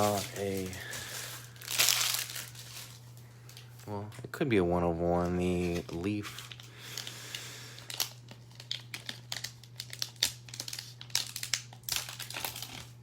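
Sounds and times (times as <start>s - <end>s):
plastic wrapping crinkling: 0.0s - 4.0s, 5.1s - 13.0s
low electrical hum: 0.0s - 13.0s.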